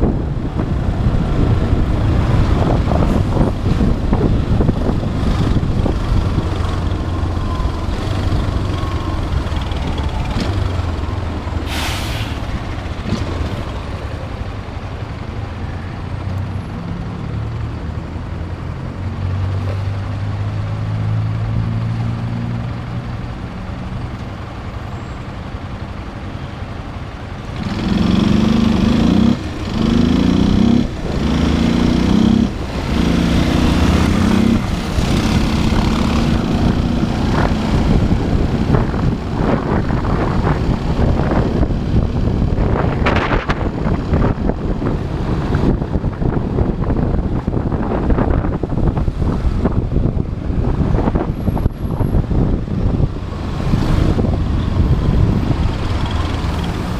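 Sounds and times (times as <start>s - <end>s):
motorcycle engine revving: 27.5s - 44.3s.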